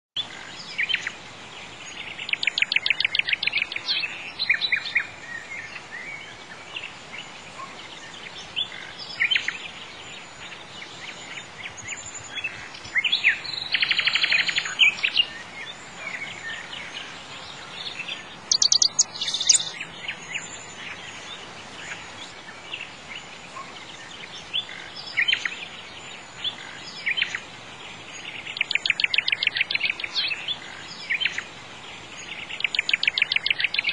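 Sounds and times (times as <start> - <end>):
steady background hiss: 0.2 - 33.9
birds trilling: 18.3 - 19.8.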